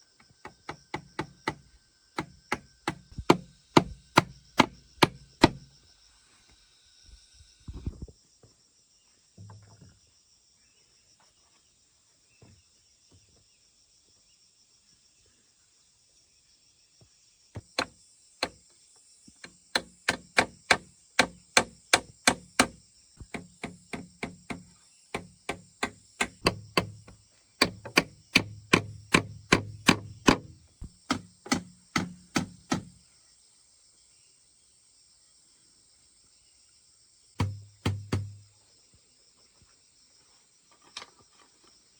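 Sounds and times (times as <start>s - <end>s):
hand tool striking wood: 0.4s - 5.7s, 17.6s - 18.6s, 19.4s - 33.0s, 37.4s - 38.5s.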